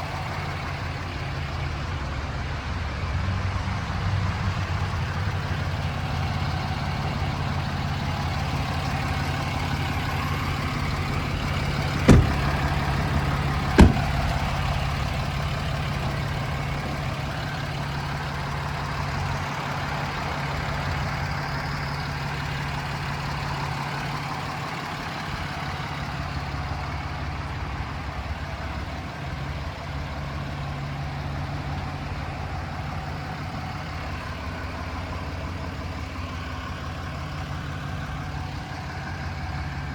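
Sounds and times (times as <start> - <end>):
diesel engine idling: 0.0 - 39.9
sharp knocks: 12.0 - 12.7, 13.6 - 14.4.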